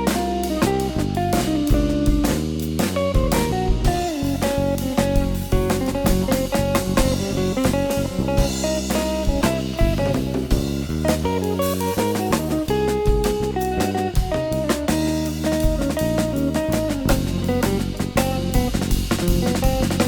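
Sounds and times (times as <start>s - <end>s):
drum kit: 0.0s - 20.0s
electric bass: 0.0s - 20.0s
electric guitar: 0.0s - 20.0s.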